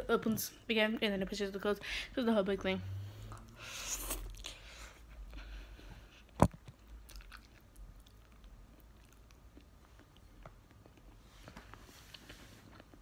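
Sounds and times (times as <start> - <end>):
person chewing: 3.2 - 5.4, 6.0 - 11.2.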